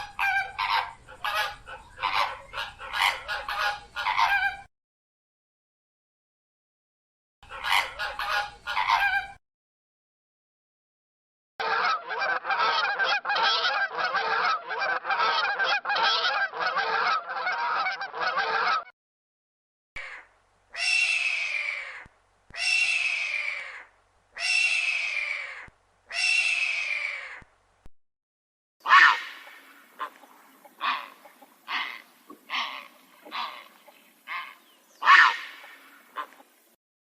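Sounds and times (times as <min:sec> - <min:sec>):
birds honking: 0:00.0 - 0:04.7, 0:07.4 - 0:09.4, 0:22.6 - 0:27.3, 0:28.8 - 0:36.6.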